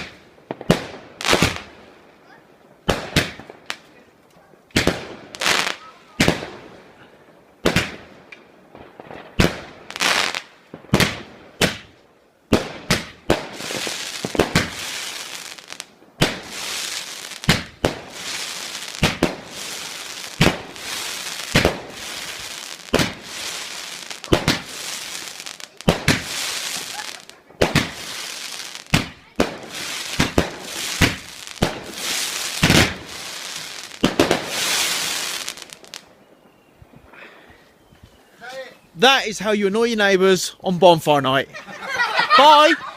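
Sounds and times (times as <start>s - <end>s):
firework bangs: 0.0s - 2.0s, 2.8s - 3.8s, 4.7s - 7.0s, 7.6s - 36.1s
crackling hiss of fireworks: 0.0s - 42.9s.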